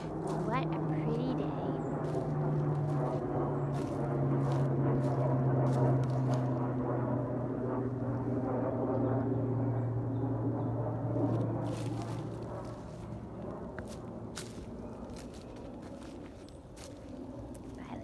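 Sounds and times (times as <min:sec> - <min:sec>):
engine drone: 0:00.0 - 0:18.0.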